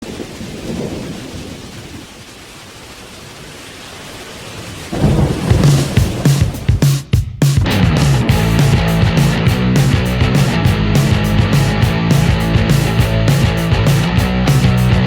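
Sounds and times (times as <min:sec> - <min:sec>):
deep thunder-like rumble: 0:00.0 - 0:02.4, 0:04.7 - 0:15.0
rain-like hiss: 0:00.0 - 0:07.0
loud rock music with guitar: 0:07.0 - 0:15.0.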